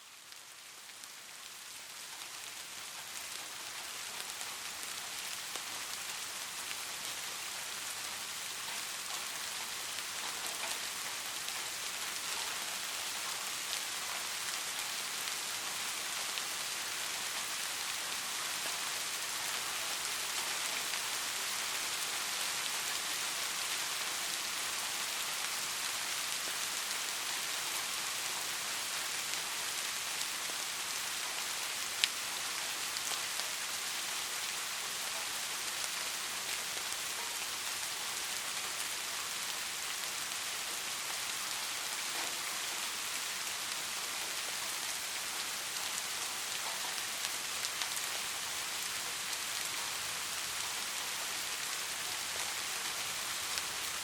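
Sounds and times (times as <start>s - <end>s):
steady rain hiss: 0.0s - 54.0s
raindrop ticks: 8.7s - 16.5s.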